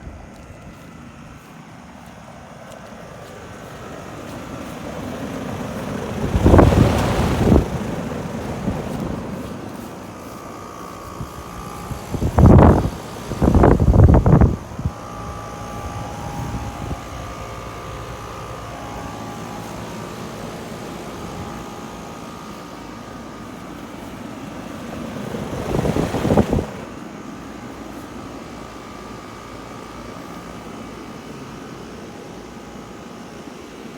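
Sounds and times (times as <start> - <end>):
faint whining tones: 0.0 - 33.9
hvac equipment humming: 0.0 - 33.9
rush of noise: 2.8 - 27.8.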